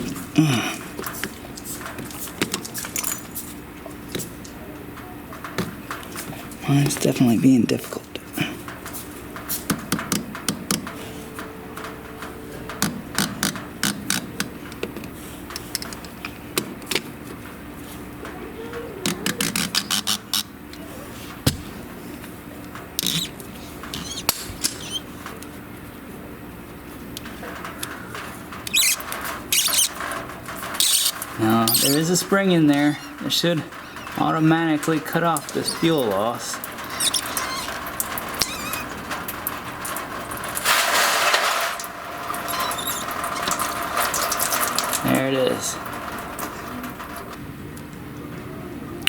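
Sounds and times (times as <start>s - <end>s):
plastic housing squeaking: 19.0s - 20.5s, 23.0s - 25.1s, 28.2s - 40.3s, 42.2s - 45.2s
short squeal: 23.9s - 25.0s, 28.7s - 30.0s, 30.8s - 32.0s, 36.8s - 37.8s, 42.4s - 44.2s
scraping rasp: 28.7s - 38.9s.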